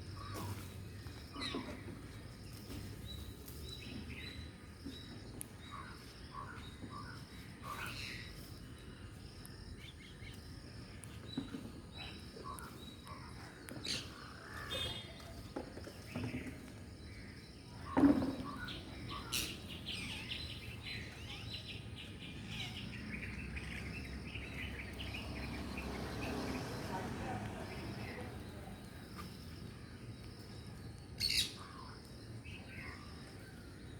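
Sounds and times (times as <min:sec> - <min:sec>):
parrots chirping and chattering: 0:17.8 - 0:26.6.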